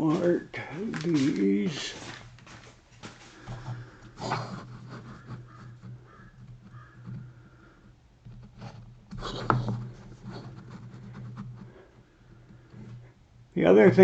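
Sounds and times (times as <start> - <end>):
pencil scratching on wood: 3.5 - 7.5, 8.3 - 13.1.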